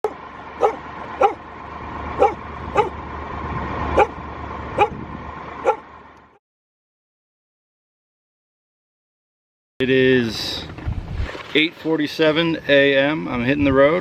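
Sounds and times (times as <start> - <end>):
dog barking: 0.0 - 1.4, 2.2 - 3.0, 4.0 - 4.2, 4.8 - 5.0, 5.6 - 5.9
low rumble: 10.3 - 11.5.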